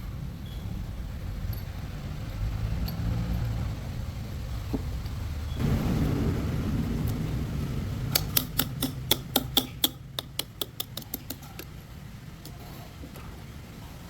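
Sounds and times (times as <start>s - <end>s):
low rumble: 0.0s - 8.6s
sharp metallic clicks: 8.1s - 11.8s.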